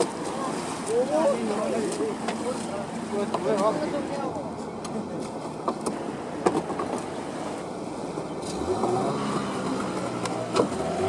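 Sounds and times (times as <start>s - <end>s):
boat engine running: 5.9s - 11.0s.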